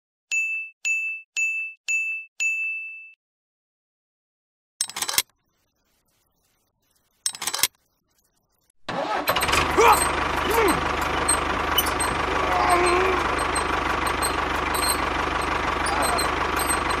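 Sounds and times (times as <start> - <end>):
high ding chimes: 0.3 - 3.2, 11.3 - 12.2, 12.8 - 17.0
metallic chain clinks: 11.8 - 13.0, 15.8 - 17.0.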